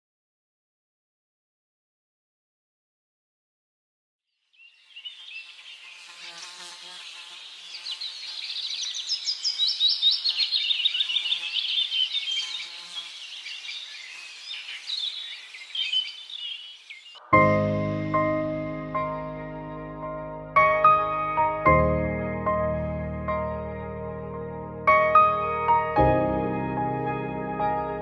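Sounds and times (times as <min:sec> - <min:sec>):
small birds chirping: 0:04.4 - 0:17.3.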